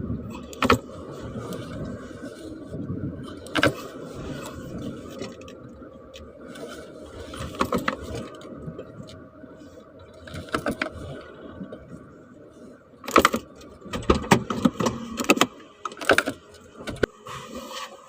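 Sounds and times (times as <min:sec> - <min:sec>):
low background rumble: 0:00.0 - 0:17.7.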